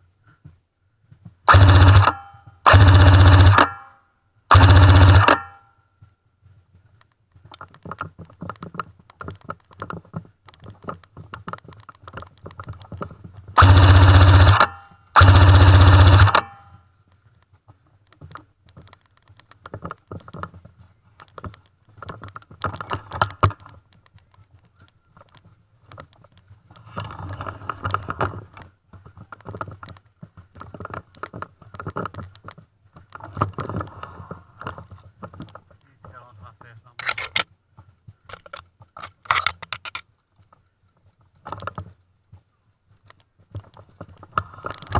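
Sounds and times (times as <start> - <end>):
electric gun full-auto bursts: 1.5 - 3.8, 4.5 - 5.6, 13.6 - 16.6.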